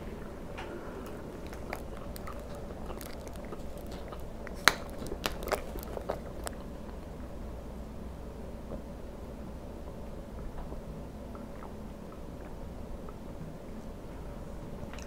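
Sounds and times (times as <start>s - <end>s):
chewing with wet mouth clicks: 1.0s - 7.3s, 11.3s - 13.3s
plastic water bottle crackling: 1.4s - 6.6s.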